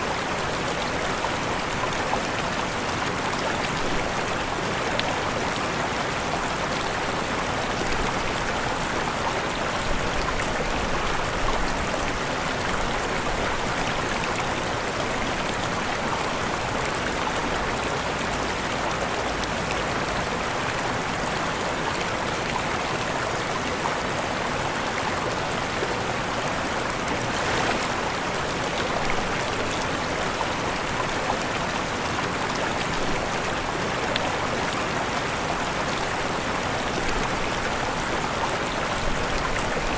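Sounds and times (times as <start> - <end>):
waterfall rushing: 24.3 - 39.9.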